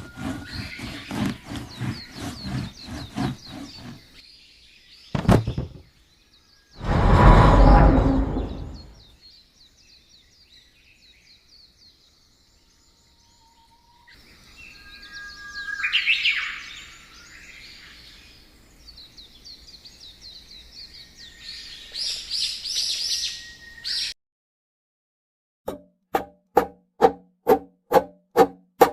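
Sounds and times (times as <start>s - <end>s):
songbirds chirping: 0.0s - 24.1s
loud rush of noise: 6.8s - 8.9s.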